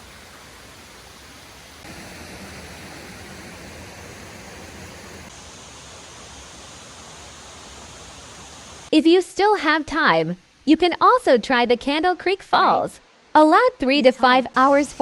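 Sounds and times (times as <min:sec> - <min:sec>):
waterfall rushing: 0:00.0 - 0:08.9.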